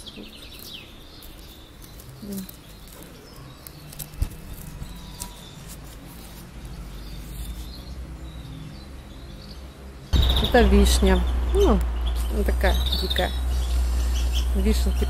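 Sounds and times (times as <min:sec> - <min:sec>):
small birds chirping: 0:00.0 - 0:15.0
low microphone rumble: 0:10.1 - 0:15.0.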